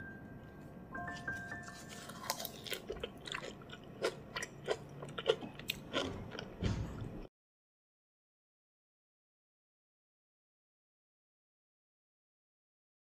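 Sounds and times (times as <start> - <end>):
person chewing crunchy food: 0.4 - 7.3.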